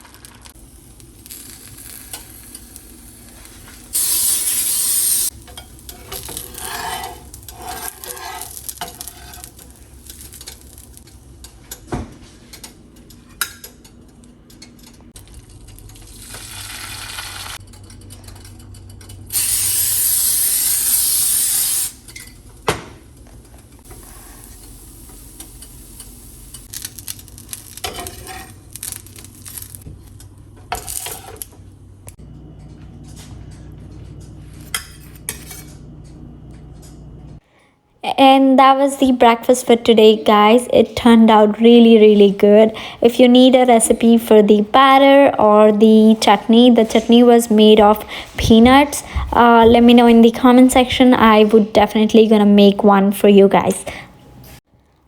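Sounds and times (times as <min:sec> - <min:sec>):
loud sizzle: 0:00.0 - 0:11.8, 0:15.1 - 0:32.4.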